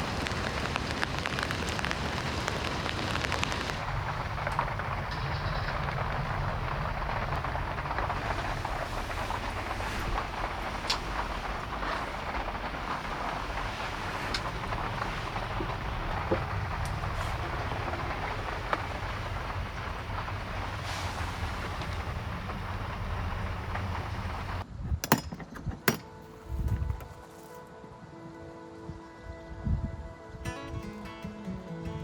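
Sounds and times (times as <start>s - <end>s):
heavy rain and road hiss: 0.0s - 24.6s
vehicle rumbling: 0.0s - 24.8s.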